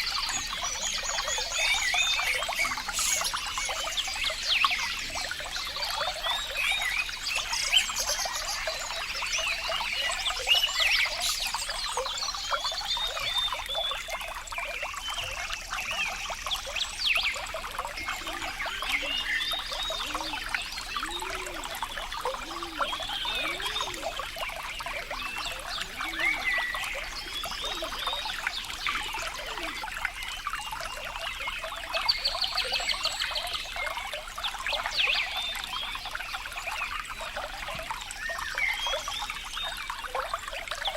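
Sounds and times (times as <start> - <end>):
water trickling and babbling: 0.0 - 40.9.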